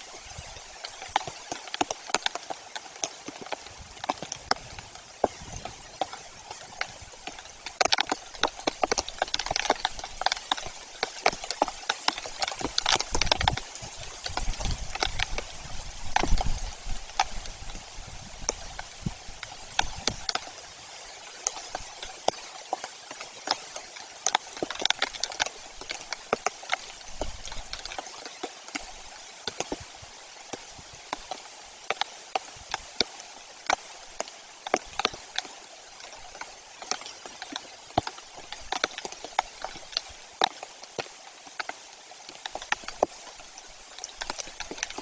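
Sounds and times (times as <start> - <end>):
raindrops tapping on microphone: 0.0 - 45.0
wind gusts on microphone: 3.6 - 7.3, 12.6 - 20.9.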